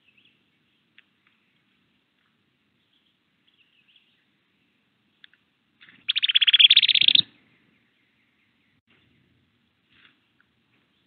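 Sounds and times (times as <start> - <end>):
faint bird chirps: 0.0 - 1.8, 2.7 - 5.3, 6.0 - 9.4
songbird rapid chattering: 6.0 - 7.3.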